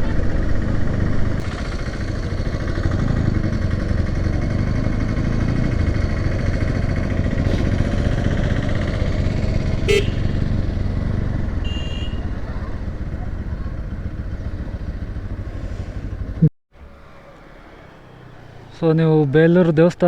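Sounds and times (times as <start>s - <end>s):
motorcycle engine running: 0.0s - 16.5s
short horn beep: 9.8s - 10.4s, 11.6s - 12.4s.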